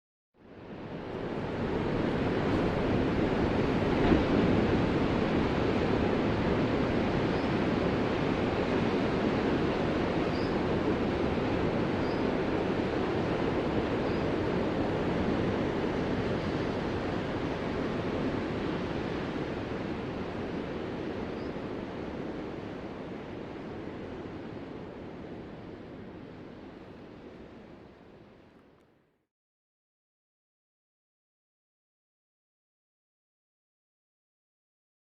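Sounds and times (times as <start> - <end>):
breaking ocean waves: 0.6 - 28.0.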